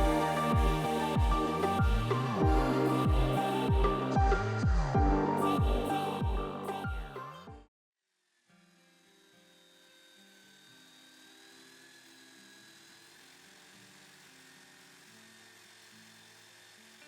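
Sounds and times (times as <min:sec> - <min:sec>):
quiet background music with low notes: 0:00.0 - 0:07.6.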